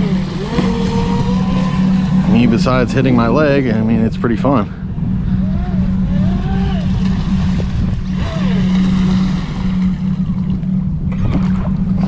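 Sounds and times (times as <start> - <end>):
electric motor whining: 0.0 - 3.1
steady low hum: 0.0 - 12.0
wind rumble on microphone: 0.0 - 12.0.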